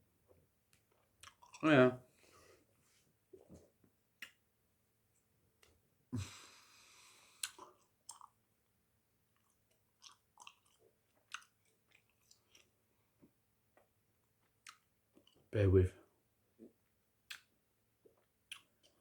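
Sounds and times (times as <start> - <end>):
chewing bubble gum: 1.2 - 1.6, 7.4 - 8.4, 9.3 - 12.8, 13.8 - 15.4, 18.1 - 19.0.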